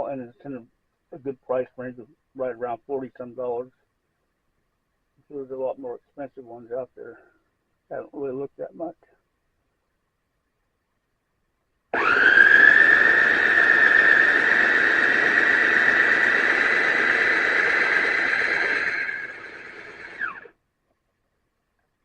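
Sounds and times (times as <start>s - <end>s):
food processor motor whine: 12.0s - 20.5s.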